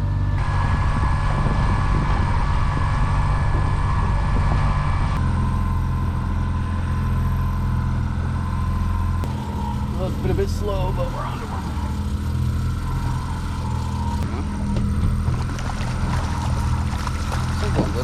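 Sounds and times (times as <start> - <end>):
boat engine droning: 0.0 - 18.0
wind: 0.0 - 18.0
water noise: 0.4 - 18.0.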